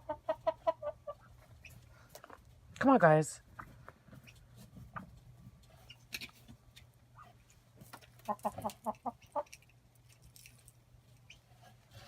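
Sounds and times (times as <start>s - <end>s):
chicken clucking: 0.0s - 1.8s, 8.1s - 9.6s.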